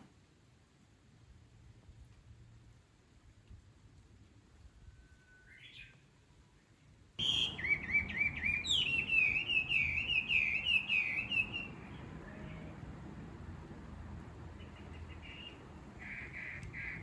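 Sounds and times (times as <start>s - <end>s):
songbird singing: 5.1s - 6.1s, 7.2s - 12.9s, 14.4s - 17.0s.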